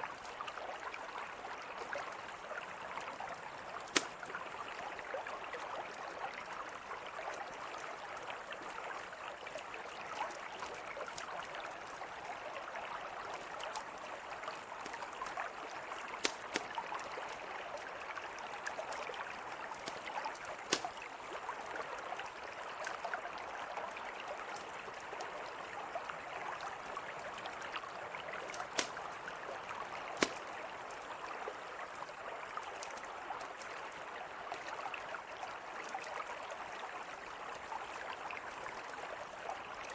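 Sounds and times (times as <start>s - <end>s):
river flowing: 0.0s - 39.9s
campfire crackling and popping: 3.7s - 4.5s, 14.6s - 17.8s, 18.6s - 21.2s, 28.4s - 29.2s, 30.1s - 30.6s, 32.8s - 33.0s.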